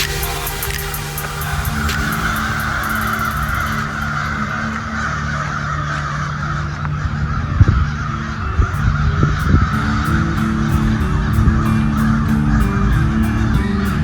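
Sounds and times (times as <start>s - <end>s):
crows cawing: 0.0s - 11.1s.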